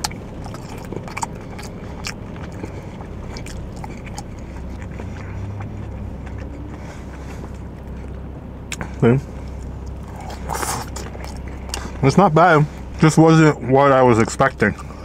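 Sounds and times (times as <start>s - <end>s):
person chewing with mouth clicks: 0.0s - 12.0s
steady low hum: 0.0s - 15.0s.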